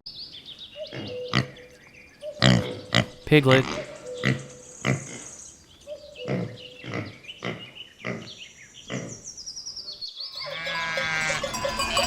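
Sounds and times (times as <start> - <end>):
piglets grunting and squealing: 2.3 - 5.3, 6.2 - 9.2.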